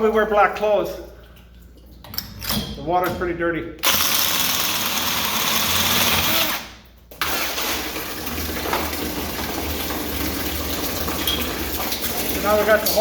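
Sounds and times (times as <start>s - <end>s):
electric drill cutting steel pipe: 3.8s - 6.7s.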